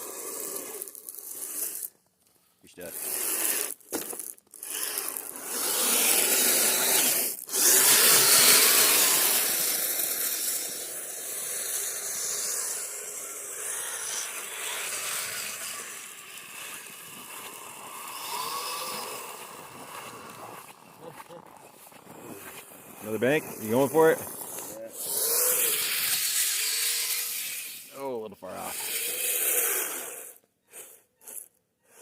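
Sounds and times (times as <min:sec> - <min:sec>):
tracks churning through snow: 0:16.4 - 0:25.8.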